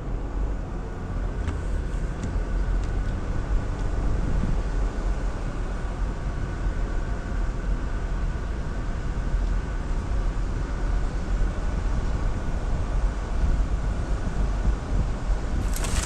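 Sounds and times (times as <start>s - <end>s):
vehicle engine low rumble: 0.0s - 16.0s.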